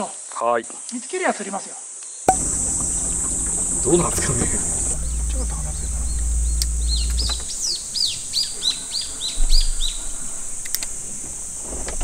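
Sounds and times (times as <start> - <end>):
steady high hiss: 2.3 - 11.4.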